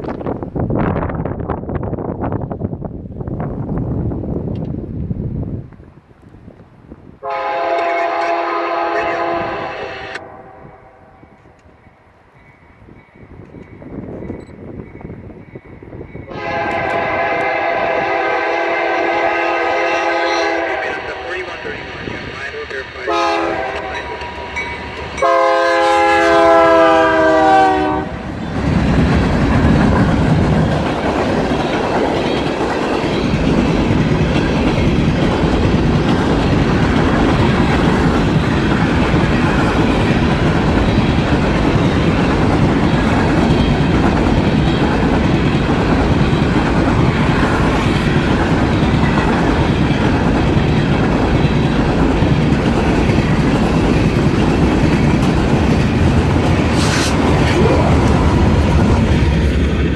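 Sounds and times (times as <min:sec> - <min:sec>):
train passing on rails: 0:00.0 - 0:59.9
locomotive horn blast: 0:07.2 - 0:11.2, 0:16.3 - 0:21.6, 0:23.0 - 0:24.6, 0:25.2 - 0:28.2.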